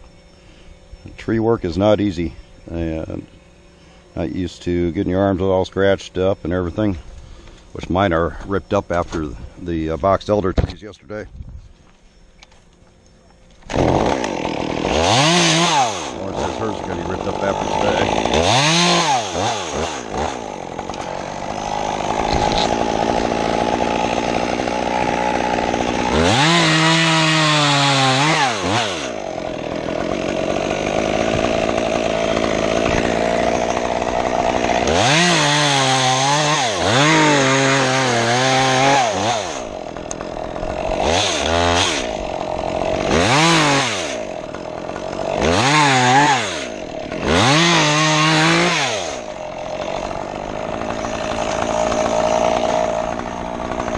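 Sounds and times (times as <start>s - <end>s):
chainsaw revving: 13.6s - 53.9s.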